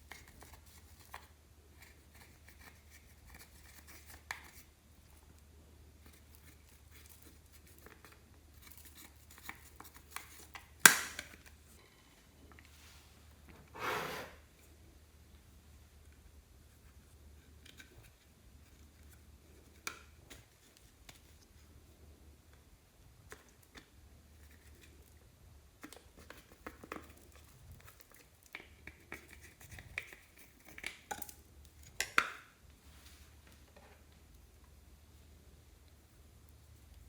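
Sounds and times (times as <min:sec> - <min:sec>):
clicks and taps of small objects: 0:06.1 - 0:11.6, 0:25.8 - 0:32.5.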